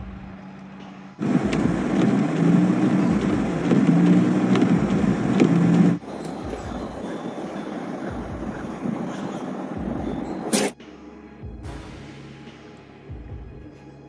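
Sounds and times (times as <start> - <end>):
motor vehicle engine running: 0.0 - 10.5.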